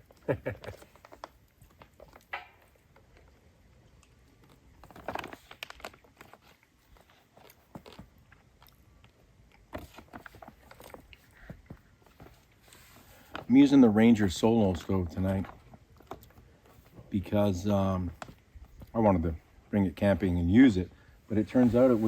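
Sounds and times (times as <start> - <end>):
wood fire crackling: 10.3 - 22.0.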